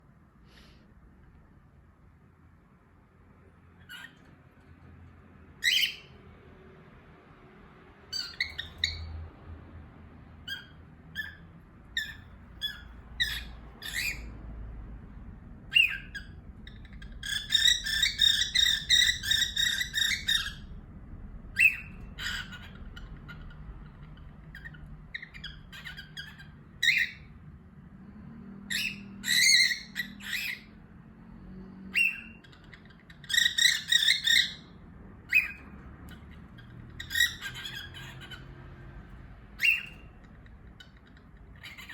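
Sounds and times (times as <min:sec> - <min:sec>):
parrots chirping: 0:03.6 - 0:06.4, 0:07.7 - 0:20.8, 0:21.4 - 0:41.9.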